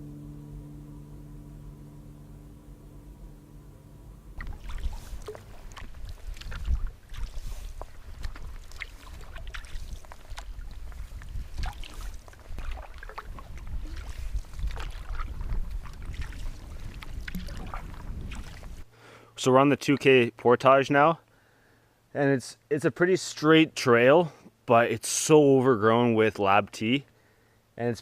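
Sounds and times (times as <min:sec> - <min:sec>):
steady musical tones: 0:00.0 - 0:06.1
wind rumble on microphone: 0:04.4 - 0:18.9.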